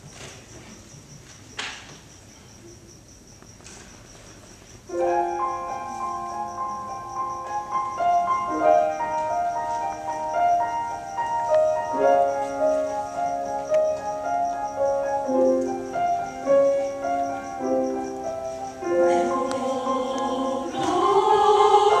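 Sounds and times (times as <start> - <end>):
piano chords: 4.9 - 22.0.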